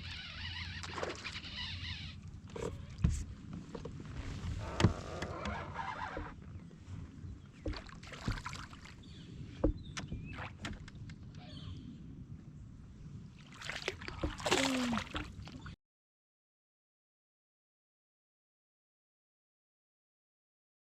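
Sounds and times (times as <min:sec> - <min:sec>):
low water noise: 0:00.0 - 0:15.8
gear knocking on plastic kayak: 0:09.6 - 0:11.0.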